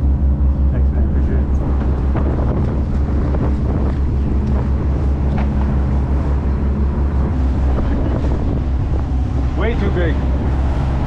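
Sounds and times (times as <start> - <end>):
boat engine droning: 0.0 - 11.0
wind noise on microphone: 0.0 - 11.0.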